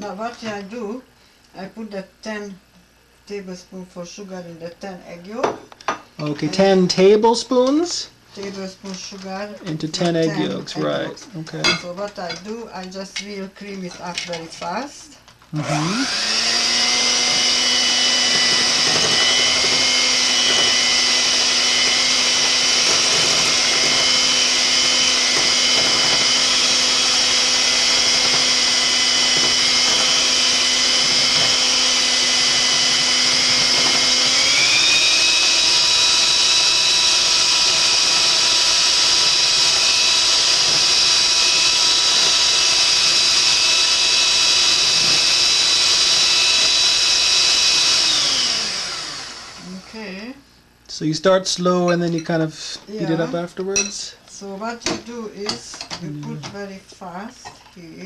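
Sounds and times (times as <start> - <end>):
electric mixer motor whine: 15.5 - 50.1, 52.9 - 53.4.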